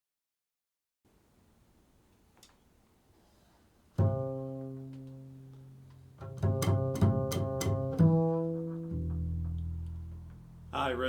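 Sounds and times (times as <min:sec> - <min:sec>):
plucked string instrument: 0:04.0 - 0:10.7.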